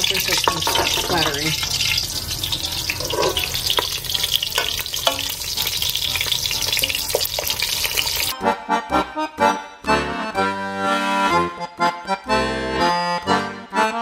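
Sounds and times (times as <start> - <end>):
wooden spoon knocking pan: 0.0 - 2.0, 2.8 - 5.9, 6.5 - 7.6
shallots sizzling in oil: 0.0 - 8.3
accordion music: 0.0 - 14.0.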